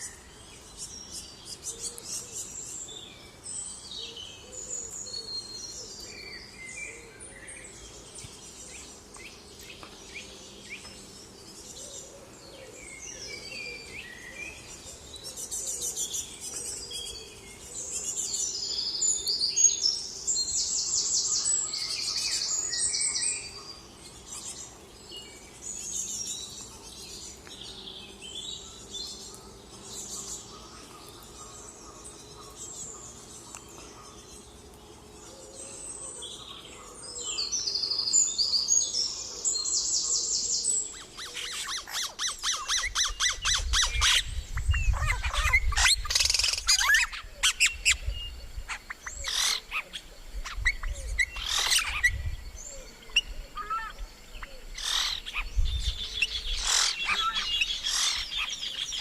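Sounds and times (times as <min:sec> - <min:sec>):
songbirds chirping and singing: 0:00.0 - 0:59.0.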